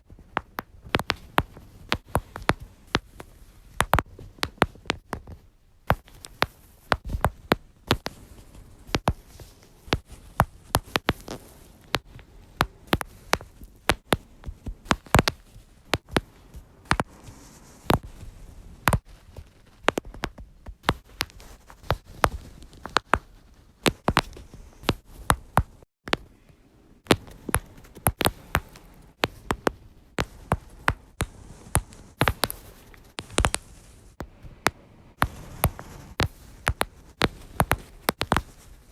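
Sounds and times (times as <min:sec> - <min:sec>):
lower back joints cracking: 0:00.0 - 0:17.1, 0:17.8 - 0:38.9.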